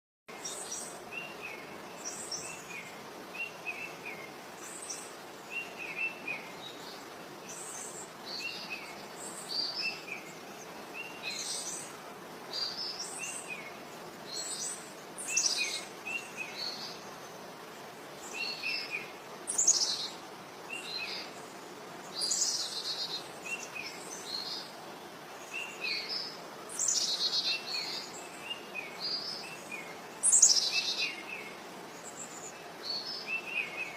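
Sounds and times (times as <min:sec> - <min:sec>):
steady background hiss: 0:00.3 - 0:33.9
birds chirping and singing: 0:12.5 - 0:24.7, 0:25.4 - 0:33.9.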